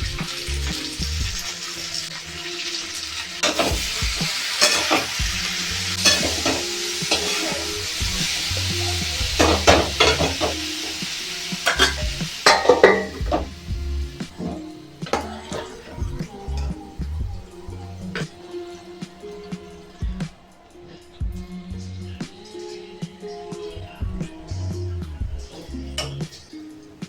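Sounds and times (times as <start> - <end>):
food sizzling in a pan: 0.0 - 27.0
spatula scraping a pan: 3.0 - 13.6.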